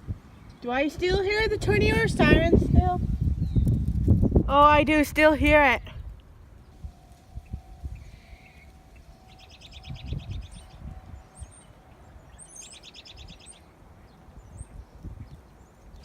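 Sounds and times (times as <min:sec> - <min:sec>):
wind buffeting microphone: 0:00.0 - 0:16.0
distant tornado siren: 0:06.3 - 0:15.0.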